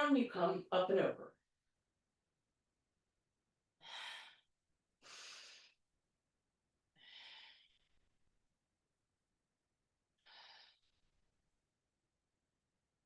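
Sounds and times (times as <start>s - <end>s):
person breathing: 3.8s - 5.8s, 7.0s - 8.2s, 10.2s - 11.2s.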